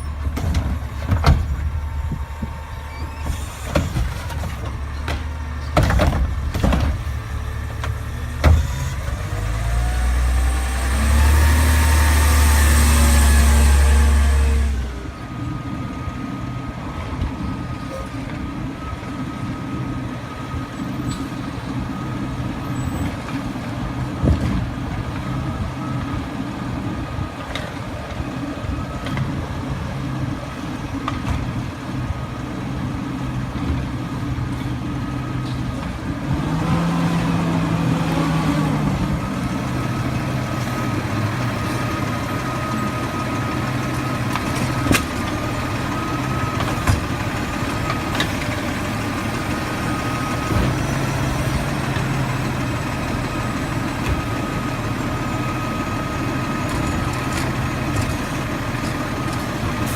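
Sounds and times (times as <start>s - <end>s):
truck diesel engine running: 0.0s - 17.7s, 31.7s - 59.9s.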